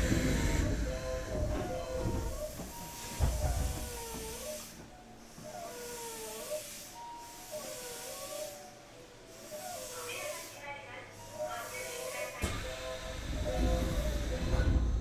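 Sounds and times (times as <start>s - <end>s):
train running rumble: 0.0s - 4.6s, 12.4s - 15.0s.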